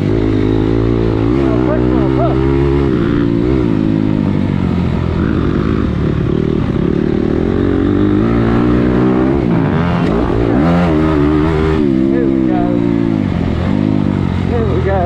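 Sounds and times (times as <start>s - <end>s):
dirt bike engine running hard: 0.0s - 15.0s.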